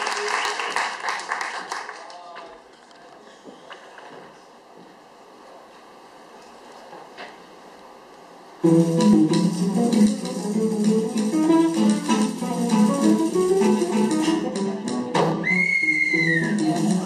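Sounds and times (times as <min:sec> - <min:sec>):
plucked guitar music: 0:08.6 - 0:15.4, 0:16.2 - 0:17.0.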